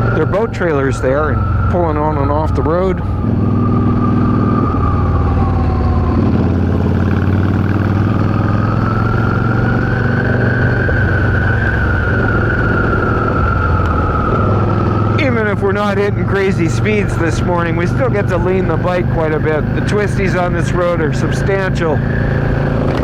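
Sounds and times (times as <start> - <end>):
steady high whistle: 0.0 - 6.1, 8.8 - 15.4
motorcycle engine running: 0.0 - 23.0.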